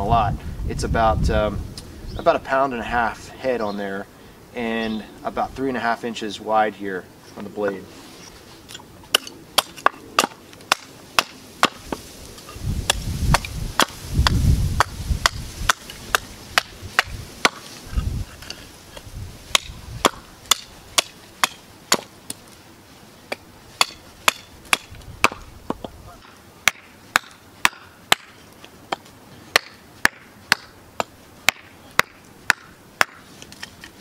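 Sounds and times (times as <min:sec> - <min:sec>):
hatchet chopping wood: 0:09.1 - 0:12.0, 0:12.9 - 0:18.6, 0:19.5 - 0:22.4, 0:23.3 - 0:33.6.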